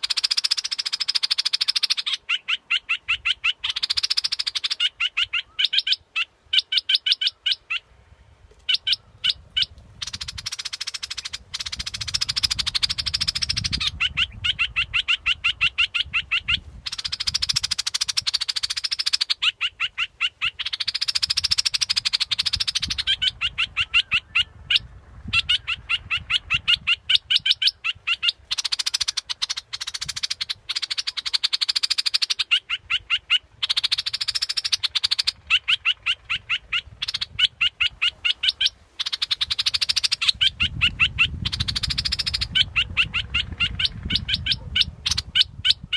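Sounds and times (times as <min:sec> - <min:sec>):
bird chattering song: 0:00.0 - 0:07.9, 0:08.6 - 0:45.9.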